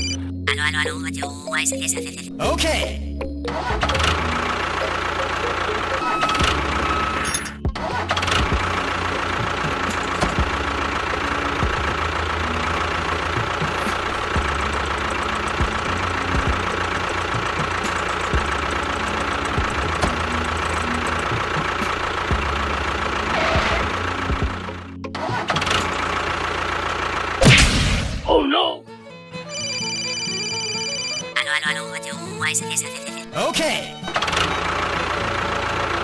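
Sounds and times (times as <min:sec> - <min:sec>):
tractor engine chugging: 0:03.4 - 0:27.9, 0:33.8 - 0:36.0
constant high whine: 0:03.4 - 0:28.1.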